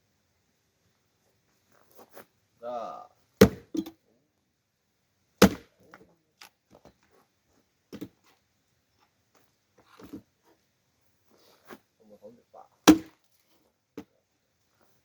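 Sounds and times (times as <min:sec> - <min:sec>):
axe splitting firewood: 0:03.4 - 0:03.9, 0:05.4 - 0:05.8, 0:12.9 - 0:13.2.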